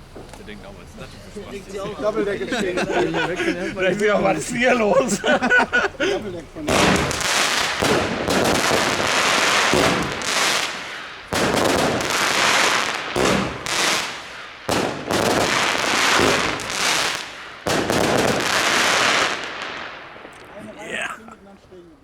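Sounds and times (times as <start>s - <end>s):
firework cakes firing: 0.0s - 0.9s, 6.4s - 21.7s
crackling firework stars: 0.0s - 2.7s, 5.9s - 22.0s.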